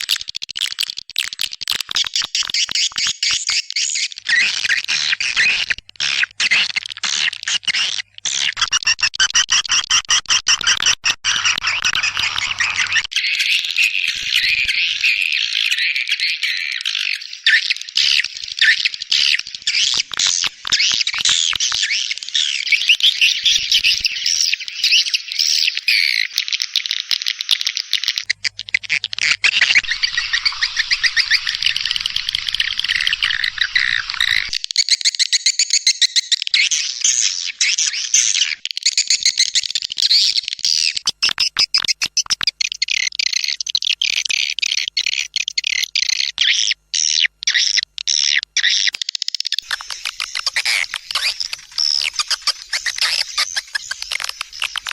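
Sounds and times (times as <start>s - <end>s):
swiftlets chirping and twittering: 11.3s - 54.9s.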